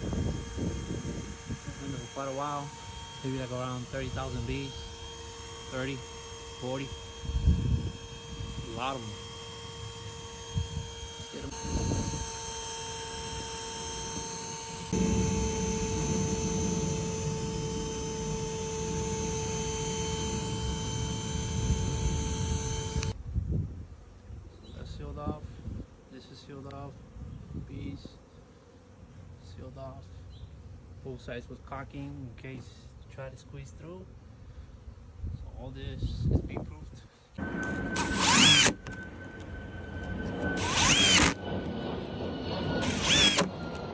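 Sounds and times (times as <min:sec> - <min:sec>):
vacuum whine: 0:00.0 - 0:23.2, 0:37.4 - 0:43.9.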